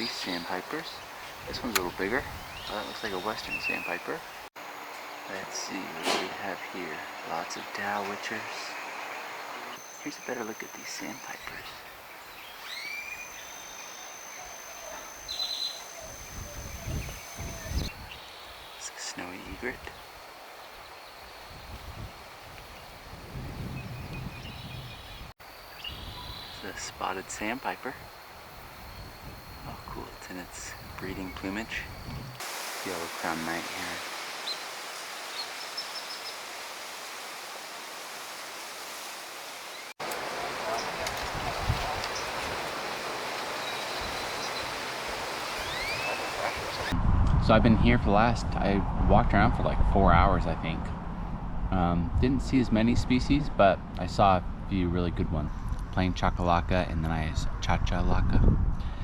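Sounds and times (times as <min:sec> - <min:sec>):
outdoor background hiss: 0:00.0 - 0:47.0, 0:49.7 - 0:58.3
high bird trill: 0:08.7 - 0:23.1, 0:41.6 - 0:47.0
rising bird call: 0:12.5 - 0:18.9, 0:39.8 - 0:47.0.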